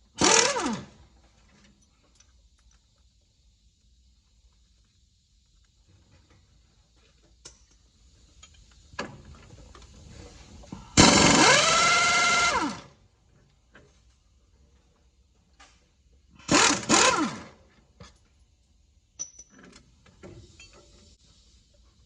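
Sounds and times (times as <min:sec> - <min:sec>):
pneumatic impact wrench: 0:00.1 - 0:01.0, 0:10.9 - 0:13.0, 0:16.4 - 0:17.7
tools clicking and knocking: 0:19.2 - 0:20.9.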